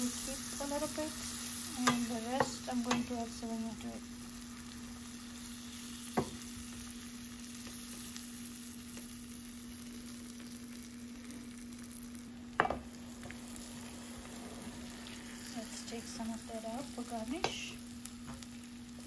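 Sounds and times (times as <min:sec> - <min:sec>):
food sizzling in butter: 0:00.0 - 0:19.0
steady low hum: 0:00.0 - 0:19.0
spatula knocking on pan: 0:01.8 - 0:03.1.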